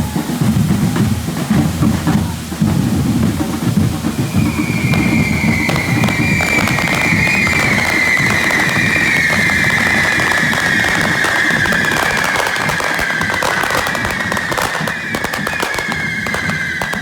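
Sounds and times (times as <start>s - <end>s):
low drumming: 0.0s - 17.0s
sparks hissing and crackling: 1.4s - 17.0s
fireworks whistling shriek: 4.0s - 17.0s.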